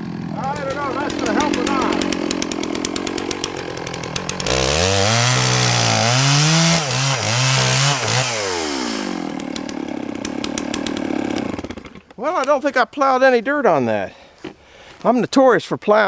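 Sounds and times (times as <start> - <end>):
chainsaw cutting log: 0.0 - 12.6
chainsaw idling: 0.0 - 12.6.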